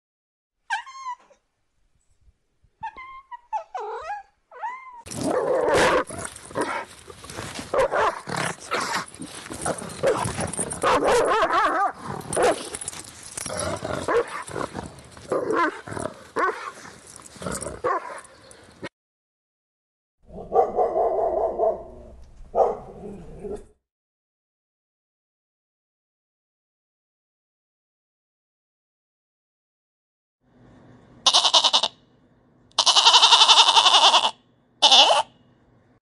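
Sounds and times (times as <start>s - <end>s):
dog barking and growling: 3.5s - 18.6s, 20.3s - 23.8s
cat meowing: 31.3s - 31.9s, 32.8s - 35.2s.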